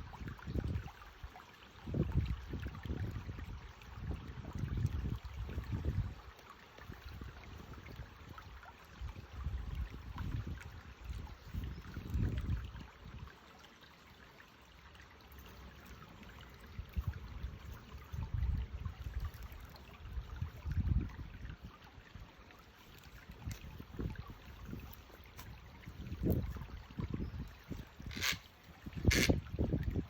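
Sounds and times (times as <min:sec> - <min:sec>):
stream water running: 0:00.0 - 0:30.0.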